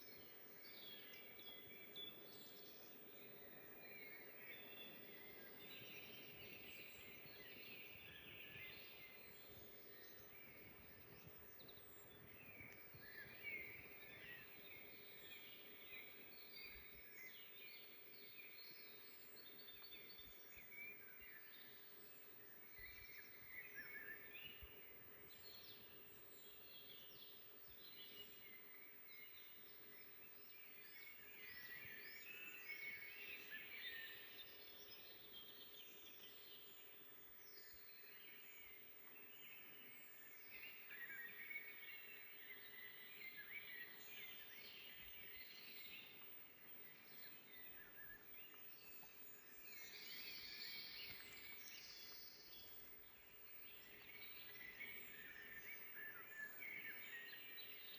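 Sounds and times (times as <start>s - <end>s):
low hiss: 0.0s - 57.9s
songbirds chirping and trilling: 0.0s - 57.9s.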